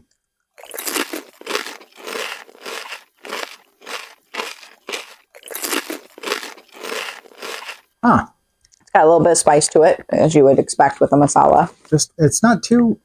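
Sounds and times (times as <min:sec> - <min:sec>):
chewing crunchy chips: 0:00.5 - 0:07.9.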